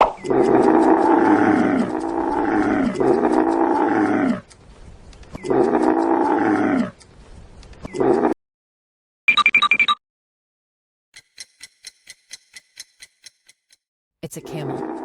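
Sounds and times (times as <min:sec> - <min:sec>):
camel bellowing: 0:00.3 - 0:04.4, 0:05.4 - 0:07.0.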